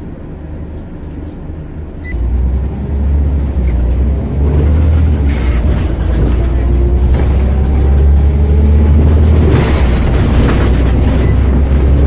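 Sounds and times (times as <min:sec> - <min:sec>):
bus engine pulling away: 0:00.0 - 0:12.0.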